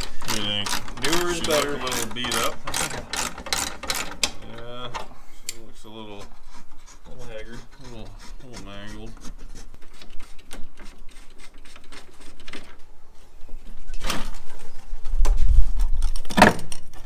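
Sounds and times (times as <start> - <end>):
clicks of metal parts and tools: 0.0 - 5.6.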